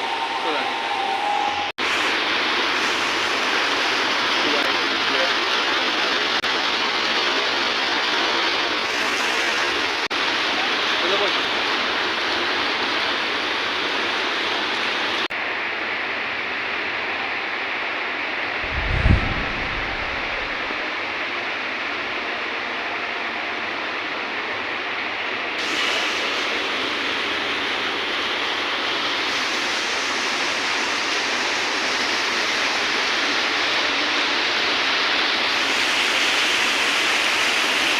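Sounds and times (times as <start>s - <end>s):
water rushing down waterfall: 1.8s - 37.9s
short low rumble: 18.6s - 20.8s
waterfall rushing: 18.6s - 21.2s.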